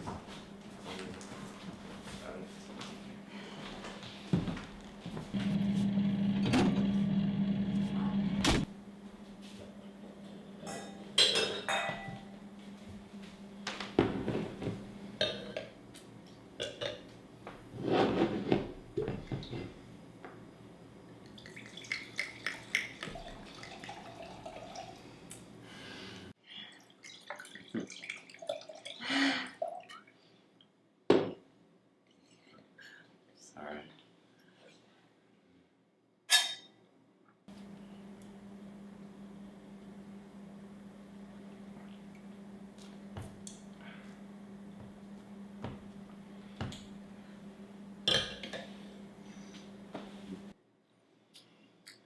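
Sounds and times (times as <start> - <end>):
glass knocks and clinks: 10.8 - 12.2
wine glugging while poured: 21.4 - 25.0.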